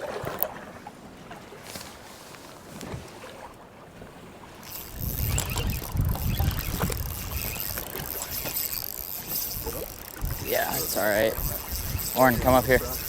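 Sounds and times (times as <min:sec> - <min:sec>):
wind buffeting microphone: 0:04.6 - 0:13.0.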